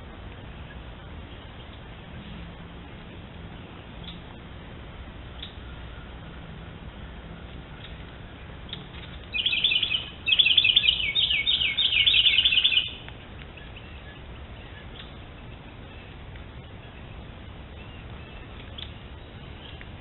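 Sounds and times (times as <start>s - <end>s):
bird chirping: 3.5s - 4.3s, 7.8s - 20.0s.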